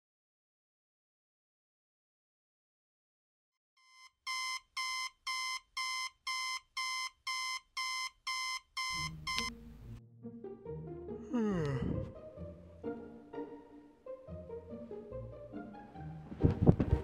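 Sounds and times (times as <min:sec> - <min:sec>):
alarm clock beeping: 0:03.8 - 0:09.5
low music: 0:08.9 - 0:17.0.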